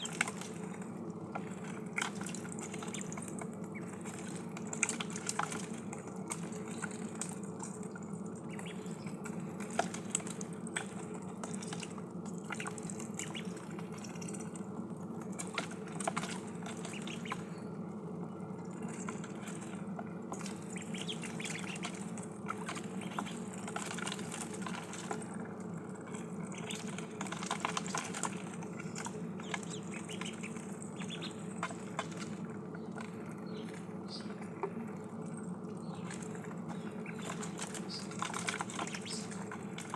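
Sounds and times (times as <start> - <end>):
ducklings dabbling in water: 0.0 - 39.9.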